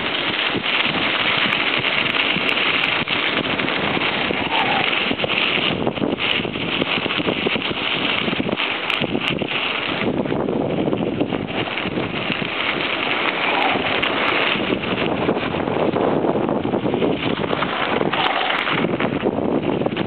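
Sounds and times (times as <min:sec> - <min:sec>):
bike tyres crackling on dirt: 0:00.0 - 0:20.0
wind buffeting microphone: 0:00.0 - 0:20.0.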